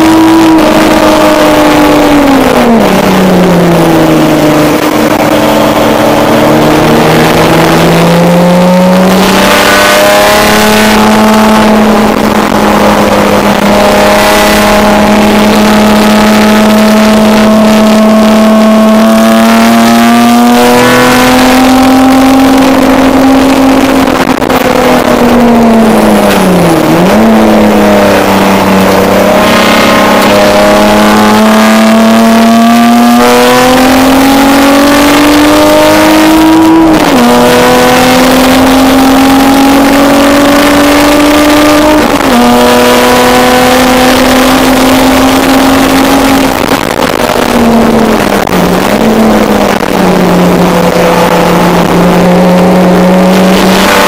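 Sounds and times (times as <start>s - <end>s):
race car engine under load: 0.0s - 54.0s
wind and road noise: 0.0s - 54.0s.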